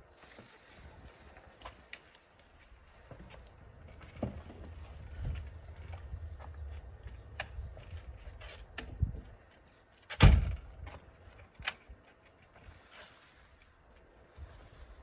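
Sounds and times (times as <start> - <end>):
low rumbling: 3.4 - 9.5
loud thump: 10.2 - 10.6.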